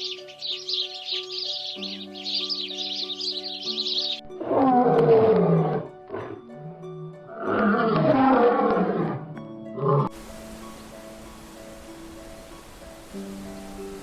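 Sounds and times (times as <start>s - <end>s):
bird-like chirping: 0.0s - 4.2s
background music: 0.0s - 14.0s
large animal rough calls: 7.2s - 9.2s.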